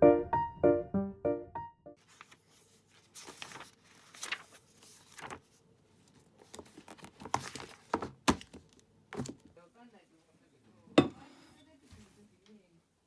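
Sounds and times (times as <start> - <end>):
piano music: 0.0 - 2.0.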